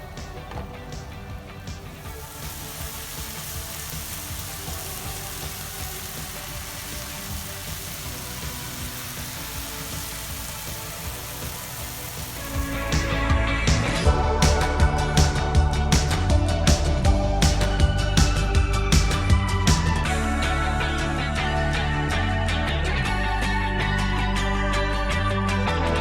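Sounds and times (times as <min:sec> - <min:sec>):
background music: 0:00.0 - 0:26.0
food sizzling in a hot pan: 0:01.8 - 0:13.3.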